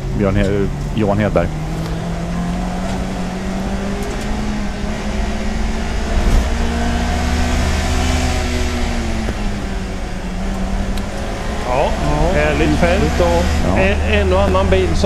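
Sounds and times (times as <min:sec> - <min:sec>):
race car engine running hard: 0:00.0 - 0:15.0.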